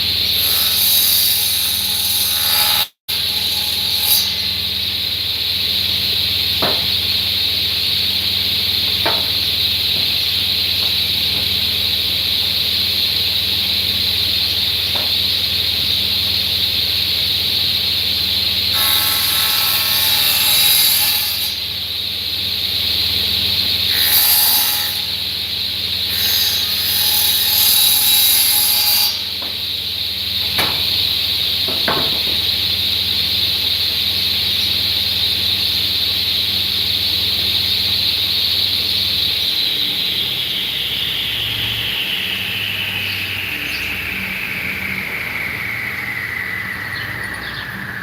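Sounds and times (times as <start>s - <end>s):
sharp knocks: 6.6s - 7.0s, 8.9s - 11.6s, 31.7s - 32.5s
saw cutting into wood: 26.1s - 29.4s.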